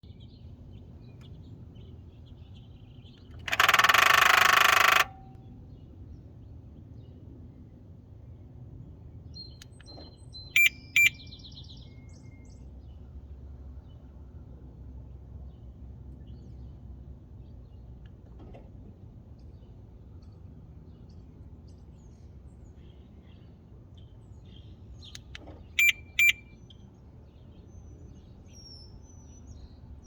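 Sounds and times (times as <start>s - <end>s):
engine rattling buzz: 3.1s - 5.4s.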